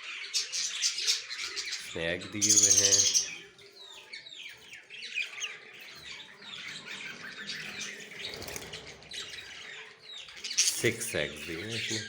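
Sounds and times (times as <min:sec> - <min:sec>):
budgerigars chirping: 0:00.0 - 0:12.0.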